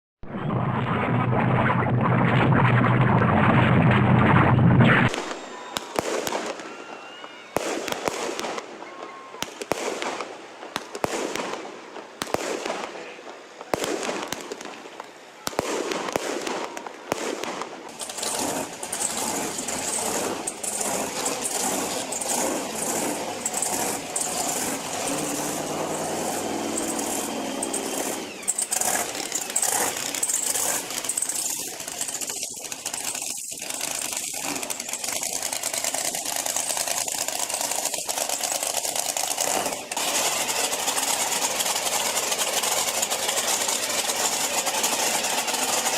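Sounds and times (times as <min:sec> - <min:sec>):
fireworks crackling and popping: 0:00.2 - 0:45.9
truck engine revving: 0:17.9 - 0:45.9.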